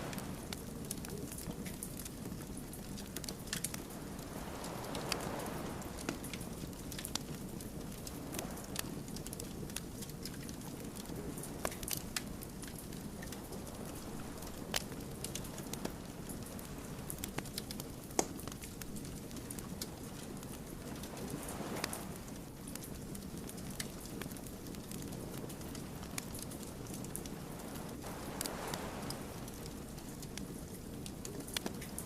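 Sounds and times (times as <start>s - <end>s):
campfire crackling: 0.0s - 32.0s.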